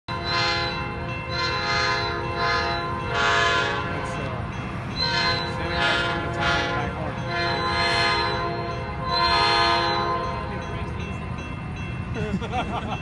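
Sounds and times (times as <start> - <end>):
train horn blast: 0.1 - 4.4, 5.0 - 10.7.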